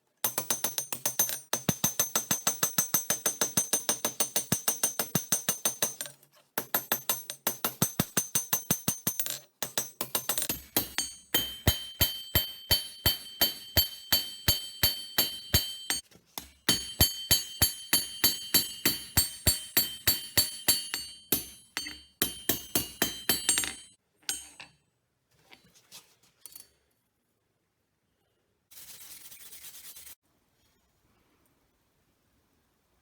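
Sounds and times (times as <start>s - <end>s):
hammer ringing on anvil: 6.7s - 24.7s.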